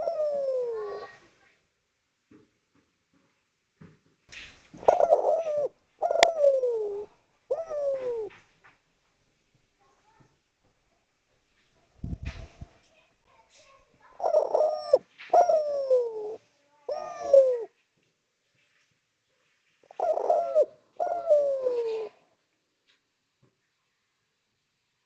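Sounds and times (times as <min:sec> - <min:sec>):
dove cooing: 0:00.0 - 0:01.3, 0:04.8 - 0:08.4, 0:14.1 - 0:17.8, 0:19.8 - 0:22.3.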